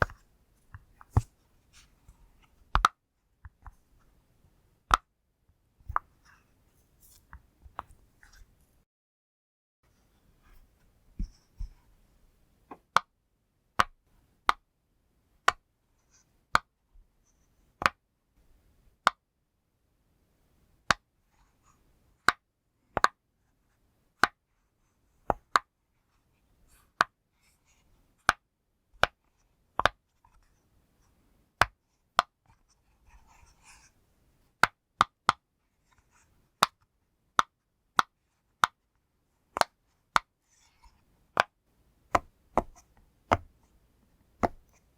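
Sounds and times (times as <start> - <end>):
soft rustle of handling: 0.0 - 2.7, 6.2 - 8.8.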